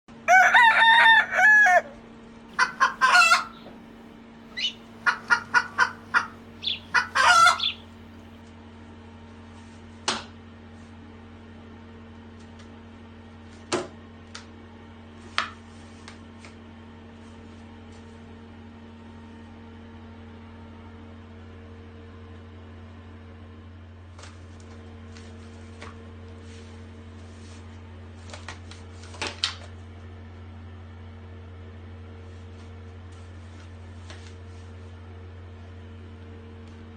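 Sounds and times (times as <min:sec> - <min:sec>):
low machine hum: 0:00.1 - 0:08.4.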